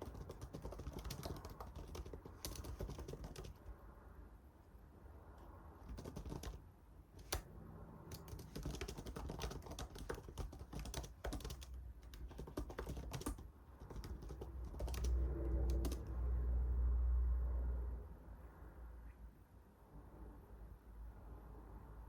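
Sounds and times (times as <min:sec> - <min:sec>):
typing on computer keyboard: 0:00.0 - 0:03.7, 0:05.8 - 0:16.2.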